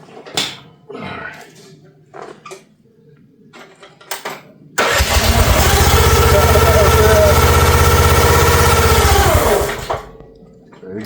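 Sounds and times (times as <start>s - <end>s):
excavator engine starting and running: 4.8s - 10.2s.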